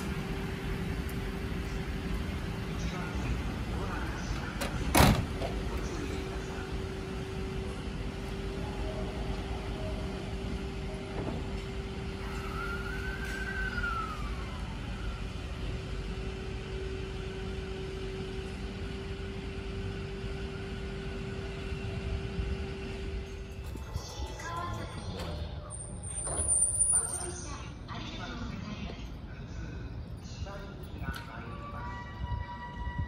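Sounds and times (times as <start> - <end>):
electric train pulling out: 0.0 - 27.4
rising and falling whine: 11.8 - 23.2.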